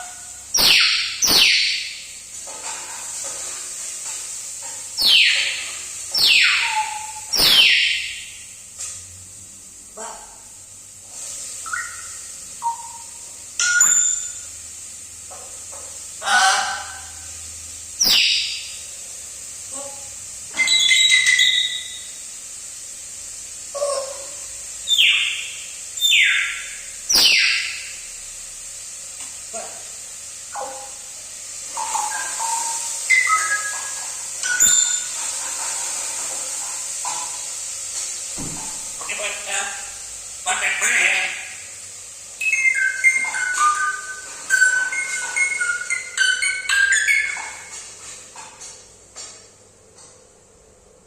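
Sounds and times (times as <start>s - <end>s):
parrot chattering: 0.0s - 1.9s, 5.0s - 8.2s, 16.2s - 17.2s, 19.7s - 22.0s, 23.7s - 27.9s, 31.7s - 35.1s
parrot screeching: 5.0s - 8.1s, 16.2s - 17.1s, 20.6s - 22.0s.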